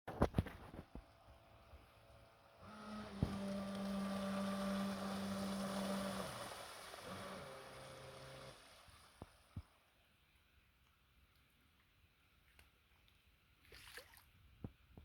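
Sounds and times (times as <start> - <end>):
rushing water: 1.0 - 9.8
jet drive whining: 1.1 - 9.2.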